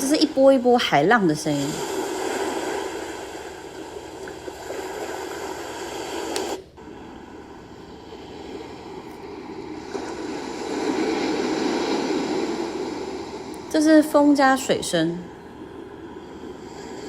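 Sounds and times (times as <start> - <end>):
white noise of ocean waves: 0.0 - 17.0.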